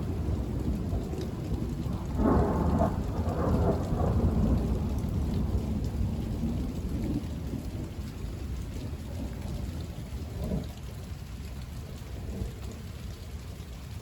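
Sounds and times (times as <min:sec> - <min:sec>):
thunder rumbling: 0:00.0 - 0:10.7
steady rain: 0:00.0 - 0:14.0.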